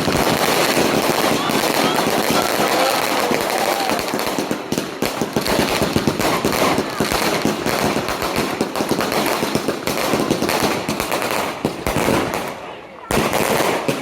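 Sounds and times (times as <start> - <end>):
firecrackers crackling: 0.0 - 14.0.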